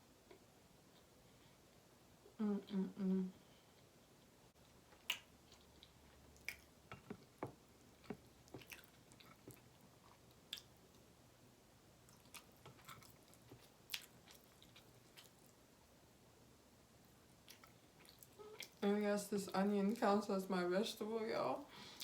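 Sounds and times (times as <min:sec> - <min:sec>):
close-up chewing with mouth clicks: 0:04.6 - 0:11.1, 0:12.0 - 0:15.7, 0:17.3 - 0:18.8.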